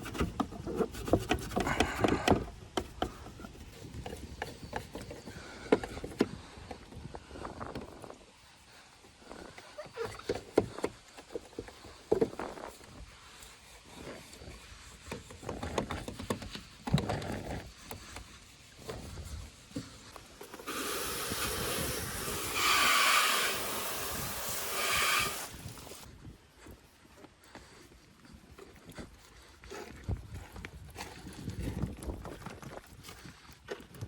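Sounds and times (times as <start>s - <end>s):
loud steady hiss: 20.3s - 26.1s.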